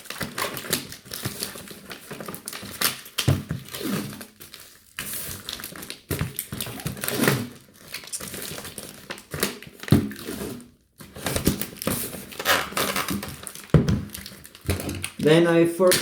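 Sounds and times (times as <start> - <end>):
bubble wrap crinkling: 0.0 - 16.0
knocks on cardboard: 13.7 - 14.1.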